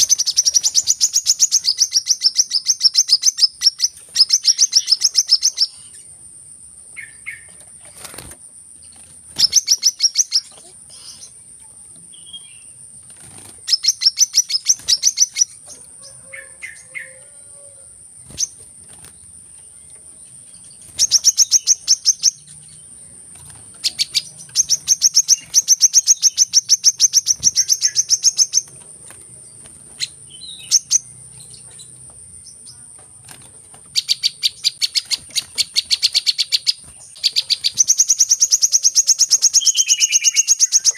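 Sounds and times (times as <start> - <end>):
sunbird chirping: 0.0 - 40.9.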